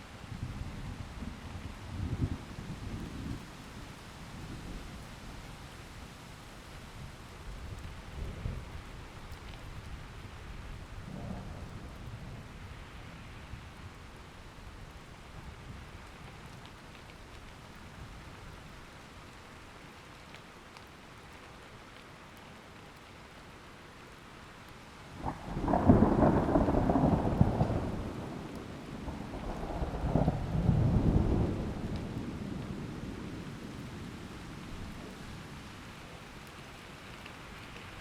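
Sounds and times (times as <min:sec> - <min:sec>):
steady rain falling: 0:00.0 - 0:38.0
thunderclap rumbling: 0:25.2 - 0:33.5.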